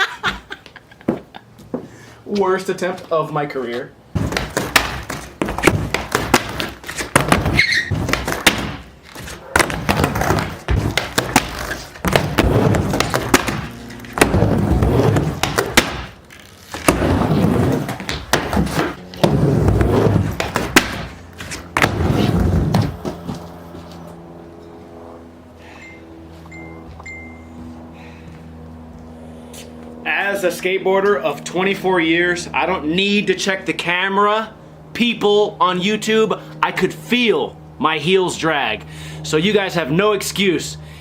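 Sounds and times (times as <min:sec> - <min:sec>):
skateboard wheels rumbling: 0:04.1 - 0:24.3
skateboard clacks and slaps: 0:04.2 - 0:23.4.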